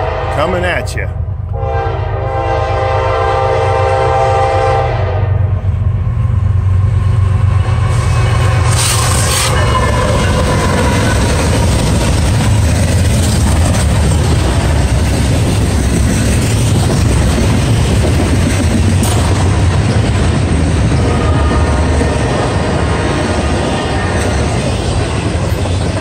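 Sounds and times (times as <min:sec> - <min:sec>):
diesel locomotive passing: 0:00.0 - 0:26.0
train wheels rushing on rails: 0:02.4 - 0:26.0.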